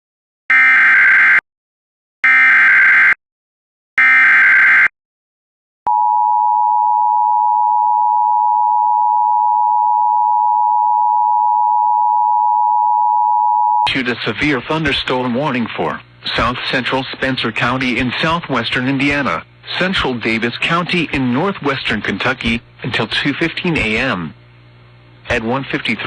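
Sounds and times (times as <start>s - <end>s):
steady alarm tone: 0.5s - 1.4s, 2.2s - 3.2s, 4.0s - 4.9s.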